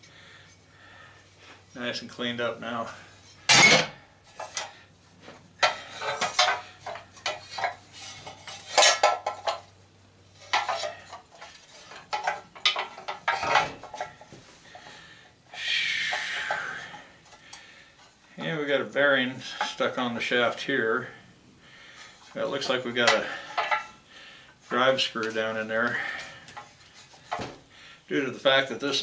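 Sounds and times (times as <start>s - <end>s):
metal parts clinking: 5.6s - 9.7s, 10.4s - 14.2s.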